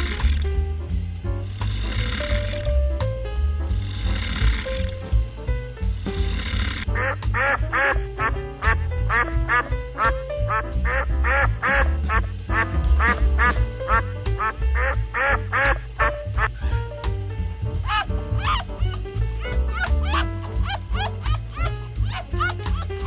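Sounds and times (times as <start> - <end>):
background music with bass: 0.0 - 23.0
ducks quacking: 6.9 - 16.8, 17.8 - 23.0.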